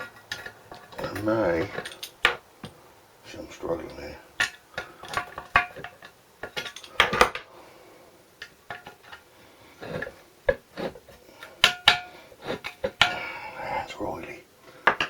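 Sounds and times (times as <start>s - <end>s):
metal tools clanking on engine: 0.0s - 2.8s, 3.8s - 7.5s.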